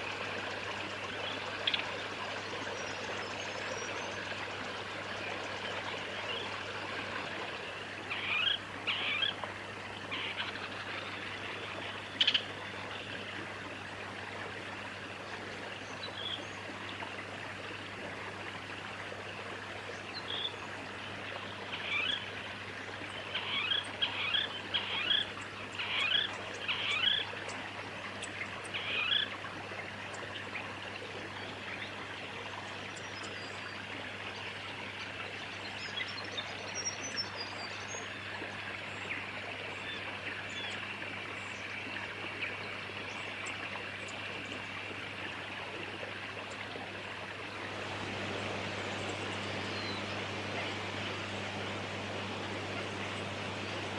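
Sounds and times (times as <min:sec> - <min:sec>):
kingfisher calling: 0:08.1 - 0:09.4, 0:21.7 - 0:22.3, 0:23.2 - 0:27.3.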